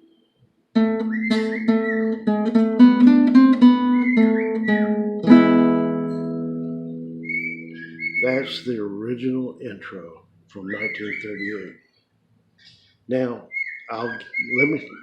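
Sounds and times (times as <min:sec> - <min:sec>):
acoustic guitar picking: 0:00.7 - 0:11.6
bird whistling: 0:01.0 - 0:02.2, 0:03.8 - 0:04.9, 0:07.1 - 0:08.7, 0:10.6 - 0:12.0, 0:12.6 - 0:15.0.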